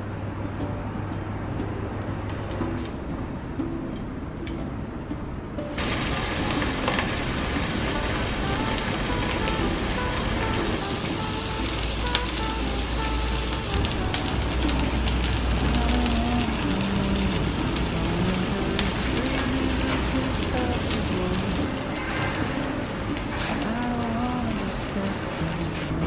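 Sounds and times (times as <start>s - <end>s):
soft background music: 0.0s - 26.0s
fish sizzling in hot oil: 5.8s - 9.6s.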